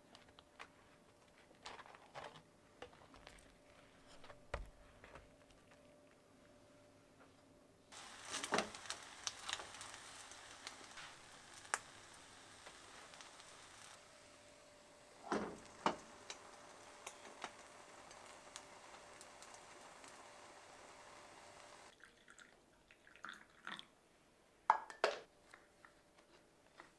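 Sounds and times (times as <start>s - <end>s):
bread sizzling in a frying pan: 7.9s - 21.9s.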